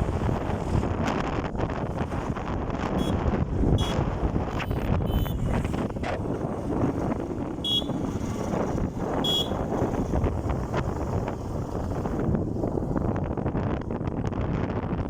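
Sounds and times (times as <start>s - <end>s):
wind buffeting microphone: 0.0s - 15.0s
short high beeps: 4.6s - 5.4s.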